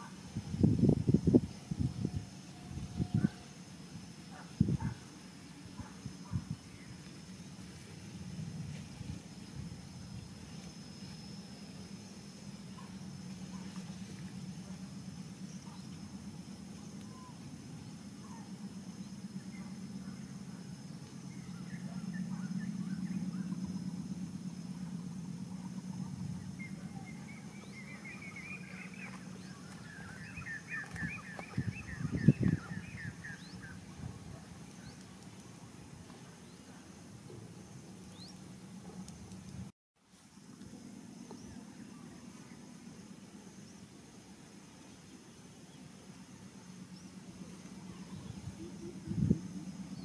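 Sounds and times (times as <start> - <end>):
steady low rumble: 0.0 - 39.7, 40.3 - 50.0
bird chirping: 25.6 - 35.2.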